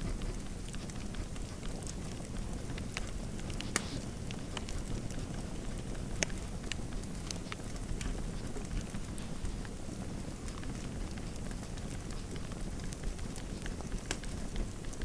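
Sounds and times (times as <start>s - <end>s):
fire pops and snaps: 10.4s - 15.0s.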